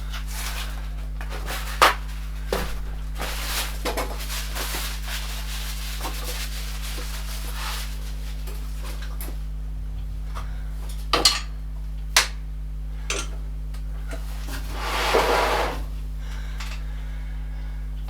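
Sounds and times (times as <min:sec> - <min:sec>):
steady electrical hum: 0:00.0 - 0:18.0
metal scraping rub: 0:14.7 - 0:15.9.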